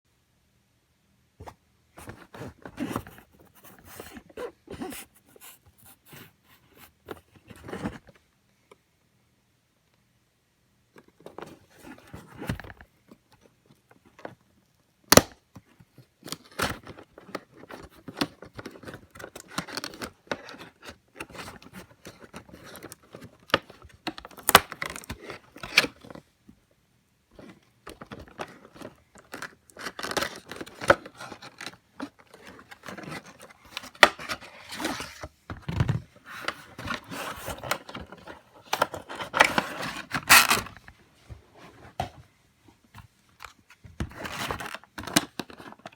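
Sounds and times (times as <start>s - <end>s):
packaging tearing and crinkling: 39.3s - 40.8s.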